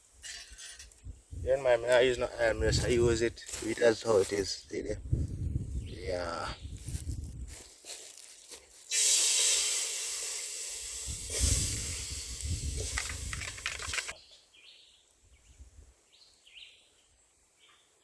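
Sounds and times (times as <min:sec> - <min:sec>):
food hissing in hot pot: 0:08.8 - 0:14.1.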